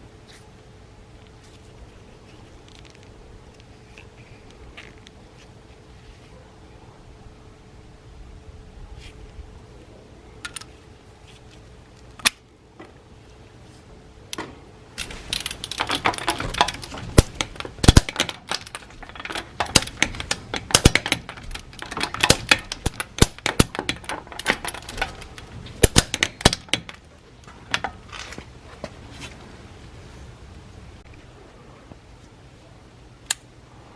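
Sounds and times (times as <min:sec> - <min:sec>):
metal parts clinking and clicking: 0:14.3 - 0:28.4.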